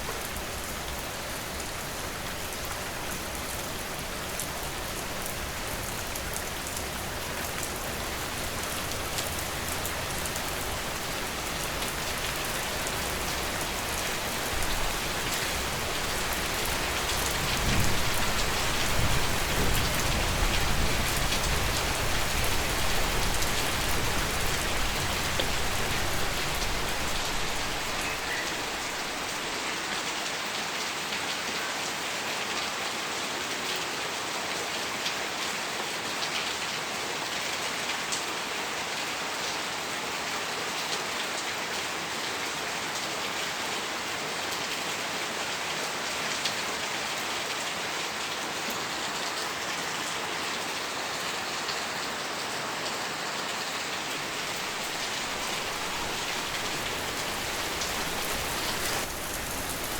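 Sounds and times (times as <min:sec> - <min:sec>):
steady rain hissing: 0:00.0 - 0:59.9.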